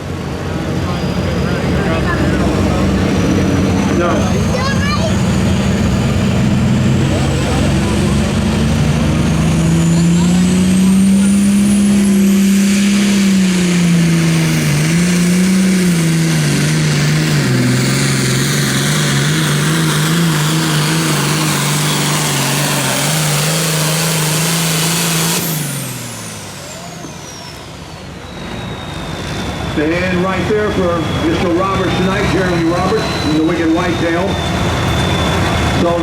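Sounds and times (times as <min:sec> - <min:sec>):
tractor diesel engine under load: 0:00.0 - 0:36.0
high whistle: 0:26.6 - 0:29.8, 0:30.6 - 0:36.0.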